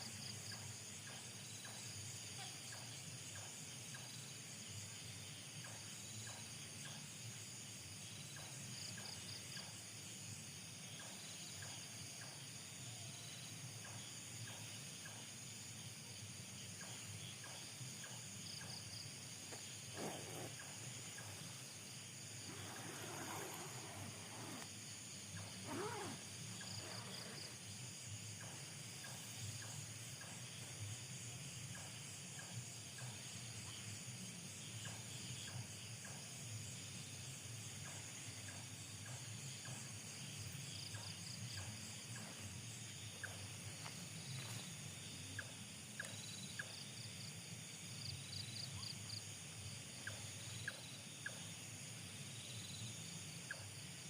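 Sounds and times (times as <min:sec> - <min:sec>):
insects shrilling and trilling: 0:16.6 - 0:30.4.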